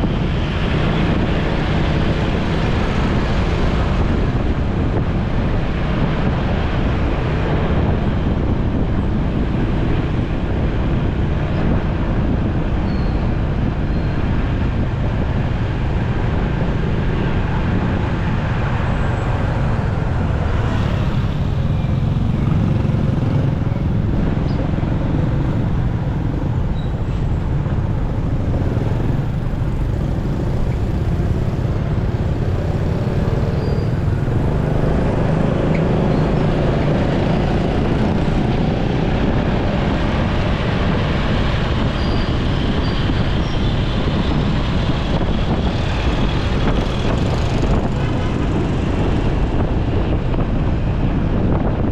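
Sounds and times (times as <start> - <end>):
road and wind noise: 0.0 - 51.9
surrounding traffic: 0.0 - 51.9
motorcycle engine: 20.7 - 39.1.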